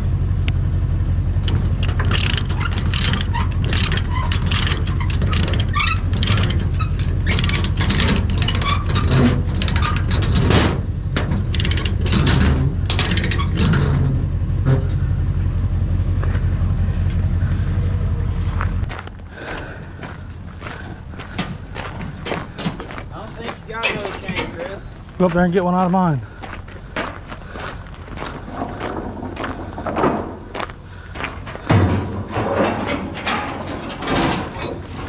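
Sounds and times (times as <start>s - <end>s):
engine running: 0.0s - 35.0s
metallic clanking and rattling: 1.3s - 15.2s, 21.0s - 25.0s, 28.2s - 35.0s.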